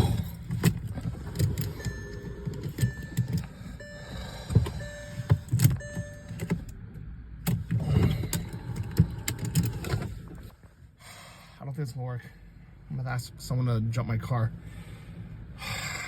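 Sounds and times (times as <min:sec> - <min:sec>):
car starter thumps and clicks: 0:00.0 - 0:10.5
short electronic beeps: 0:01.8 - 0:06.6.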